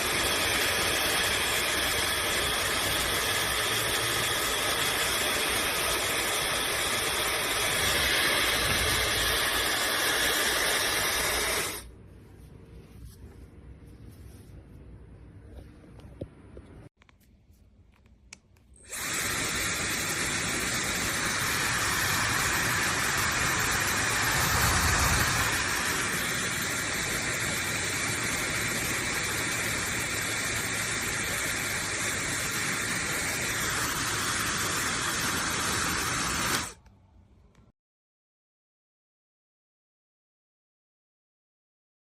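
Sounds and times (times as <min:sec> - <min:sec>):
hair dryer blowing: 0:00.0 - 0:11.9, 0:18.8 - 0:36.8
faint high motor whine: 0:18.8 - 0:36.8.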